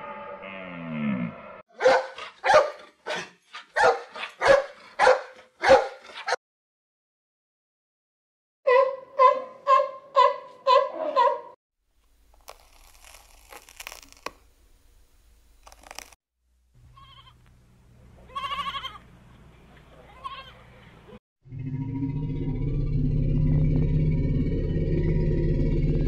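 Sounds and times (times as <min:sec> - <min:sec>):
faint crackling and rustling: 0:12.0 - 0:16.2
lamb bleating: 0:16.9 - 0:17.4, 0:18.3 - 0:19.0, 0:20.1 - 0:20.6.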